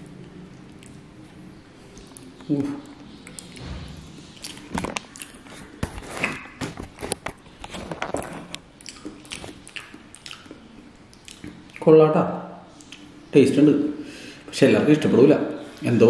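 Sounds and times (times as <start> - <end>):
person chewing wetly: 0.0 - 3.6, 4.2 - 6.5, 8.1 - 11.9, 12.7 - 13.2
wet mouth clicks: 8.8 - 11.9, 12.8 - 13.1.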